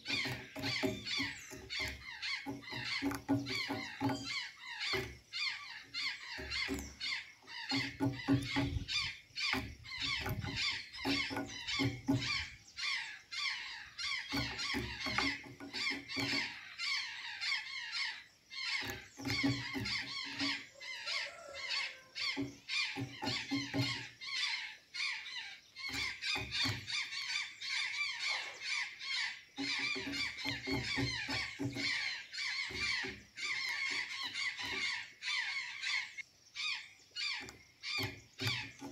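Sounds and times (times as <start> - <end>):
low rapid tapping: 0.0 - 12.8
jays squawking calls: 0.0 - 38.9.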